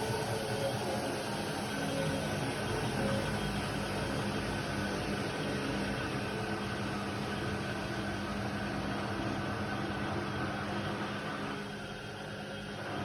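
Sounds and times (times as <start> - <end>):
washer-dryer humming and whirring: 0.0 - 13.0.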